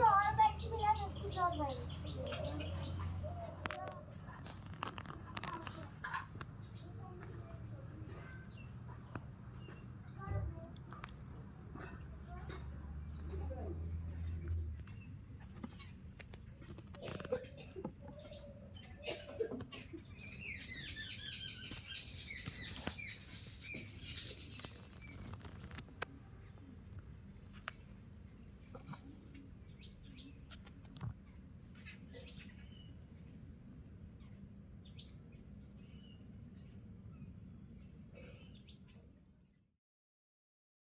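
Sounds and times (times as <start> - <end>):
bird chirping: 0.0 - 4.3, 13.0 - 25.8
high-pitched insect drone: 0.0 - 39.6.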